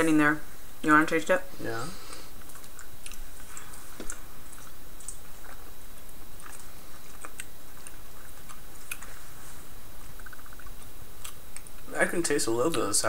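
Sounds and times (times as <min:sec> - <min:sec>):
background hiss: 0:00.0 - 0:13.0
person chewing candy: 0:02.1 - 0:11.9.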